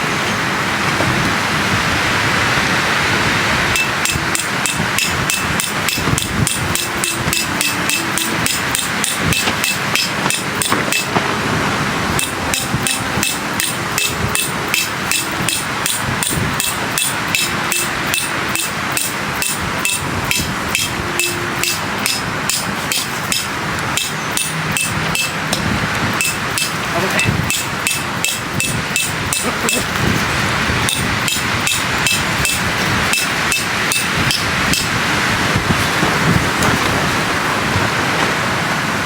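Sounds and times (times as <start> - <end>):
hammer blows on metal pegs: 3.8 - 11.3, 12.1 - 35.0
strong wind rushing: 9.1 - 17.3, 25.0 - 39.0.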